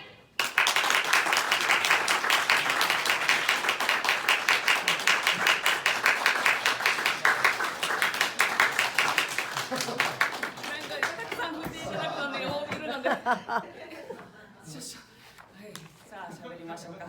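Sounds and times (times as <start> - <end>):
audience applauding: 0.4 - 11.7.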